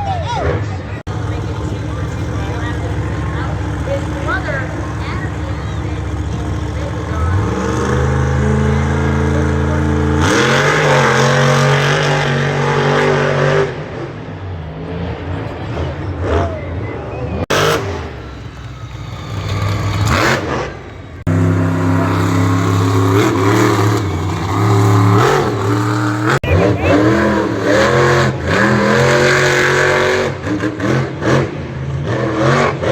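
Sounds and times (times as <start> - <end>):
truck engines revving: 0.0 - 32.9.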